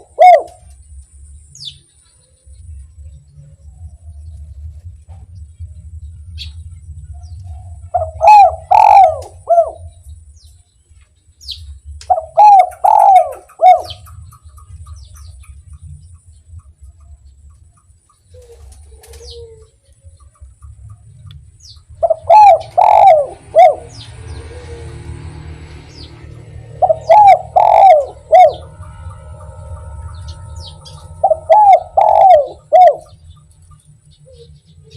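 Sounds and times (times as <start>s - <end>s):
dove cooing: 0.0s - 0.7s, 7.5s - 10.0s, 12.1s - 14.8s, 18.3s - 19.8s, 21.9s - 33.4s
small birds chirping: 0.0s - 34.9s.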